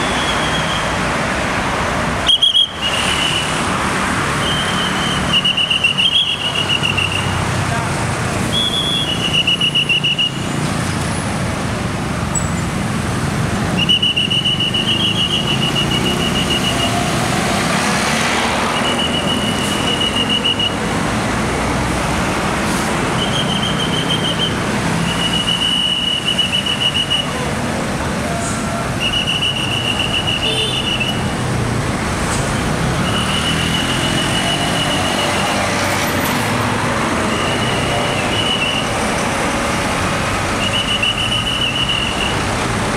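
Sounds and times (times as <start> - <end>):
trilling traffic whistle blasts: 0.0 - 1.0, 2.2 - 3.6, 4.4 - 7.4, 8.5 - 10.5, 13.8 - 17.1, 18.6 - 20.8, 23.1 - 27.4, 28.4 - 31.3, 33.0 - 35.6, 37.2 - 39.0, 40.6 - 42.5.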